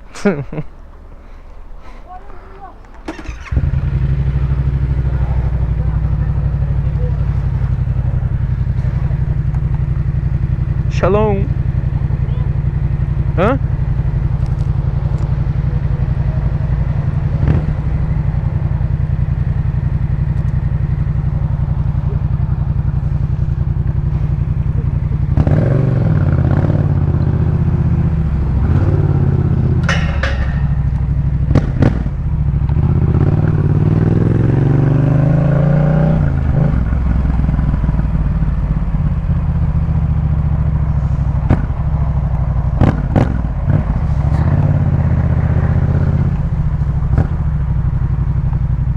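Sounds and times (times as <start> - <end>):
motorcycle engine revving: 2.6 - 48.9
sharp clicks or knocks: 29.8 - 32.1.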